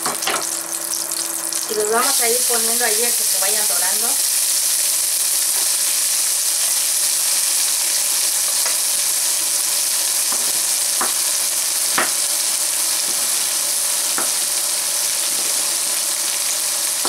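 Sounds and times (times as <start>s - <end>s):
vegetables sizzling in a skillet: 0.0s - 17.0s
knife chopping on wooden board: 12.0s - 12.2s.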